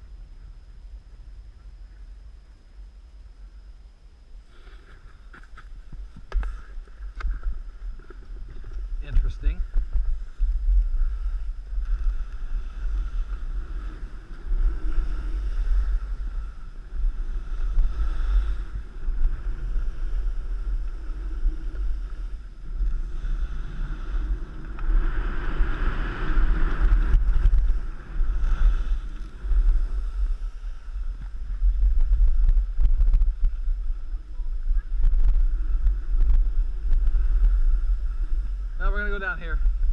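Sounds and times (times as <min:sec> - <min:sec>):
wind buffeting microphone: 0:05.0 - 0:39.9
snowboard scraping on snow: 0:10.1 - 0:33.4.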